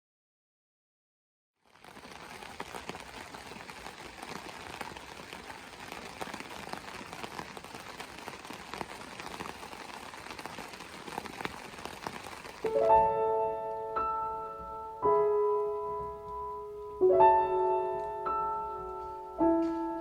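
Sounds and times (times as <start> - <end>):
campfire crackling: 1.6 - 13.0
fire pops and snaps: 1.6 - 13.0.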